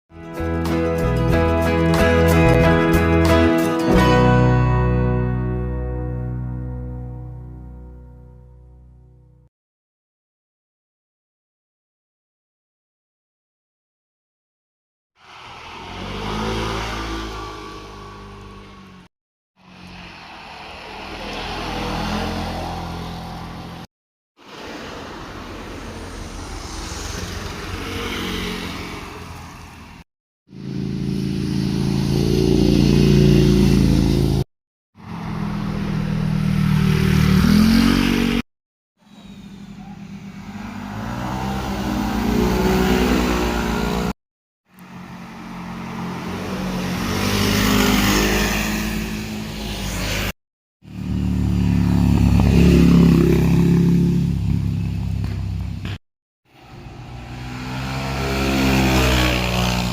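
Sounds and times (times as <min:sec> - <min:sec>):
motorcycles passing: 0:15.2 - 0:23.9, 0:24.5 - 0:34.4, 0:35.0 - 0:38.4, 0:39.1 - 0:44.2, 0:44.8 - 0:50.3, 0:50.9 - 0:56.0, 0:56.6 - 0:59.9.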